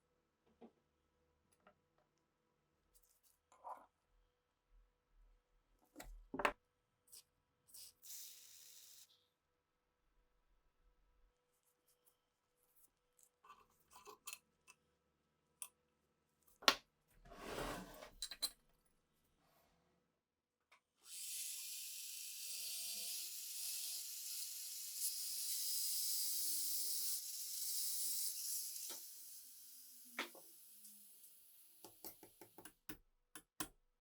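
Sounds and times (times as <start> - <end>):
short scrape: 17.3 - 18.2.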